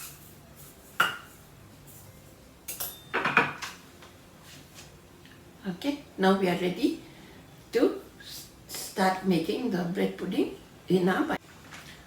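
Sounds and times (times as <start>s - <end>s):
dishware clinking: 2.7s - 3.7s.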